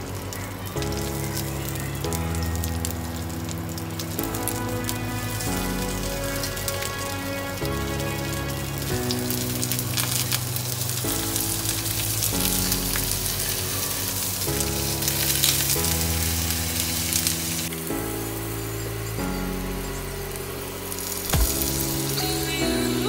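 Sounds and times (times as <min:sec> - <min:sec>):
background music with held chords: 0:00.0 - 0:23.0
potato patties sizzling in oil: 0:08.8 - 0:17.7.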